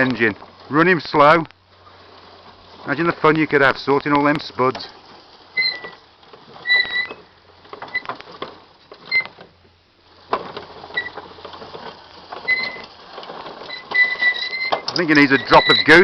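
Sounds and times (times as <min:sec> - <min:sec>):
mechanism clicking and rattling: 0:04.0 - 0:16.0
short high squeak: 0:05.6 - 0:06.0, 0:06.6 - 0:07.3, 0:13.7 - 0:16.0.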